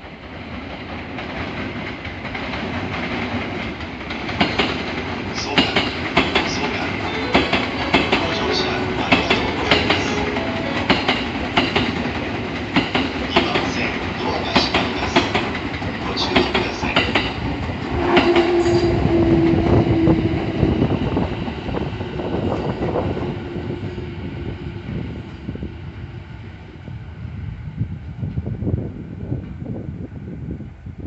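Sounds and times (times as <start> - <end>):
train wheels clattering: 0.5 - 23.1
steady tone: 6.6 - 12.4.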